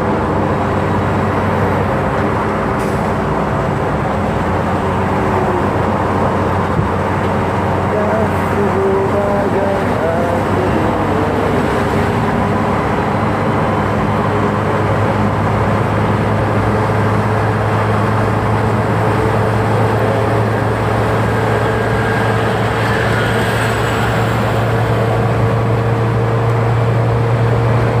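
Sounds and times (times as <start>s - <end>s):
ship engines droning: 0.0s - 28.0s.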